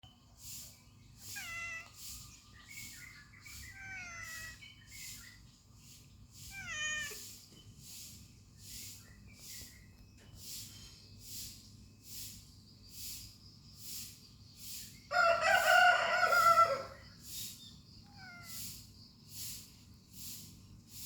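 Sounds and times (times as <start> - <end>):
cat meowing: 1.3 - 2.0, 3.6 - 4.6, 6.5 - 7.2, 18.0 - 18.8.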